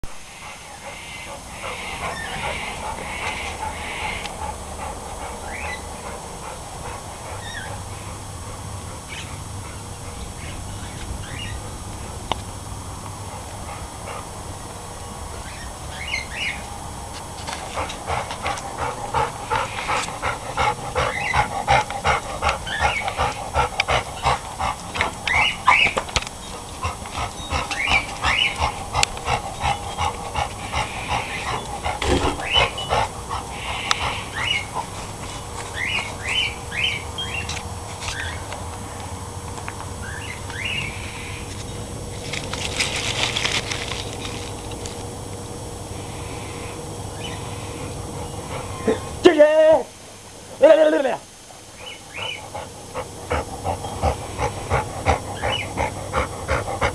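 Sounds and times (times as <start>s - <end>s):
dog vocalizing: 0.4s - 10.3s, 17.7s - 25.9s, 26.5s - 35.2s, 51.8s - 56.9s.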